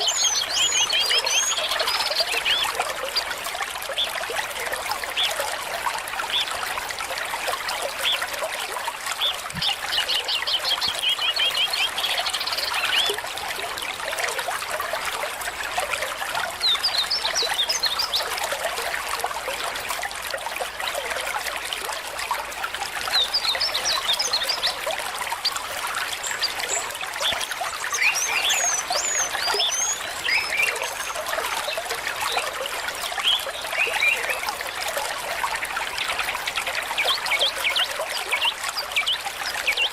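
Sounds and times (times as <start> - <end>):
stream water running: 0.0 - 39.9
birds chirping: 26.2 - 31.2.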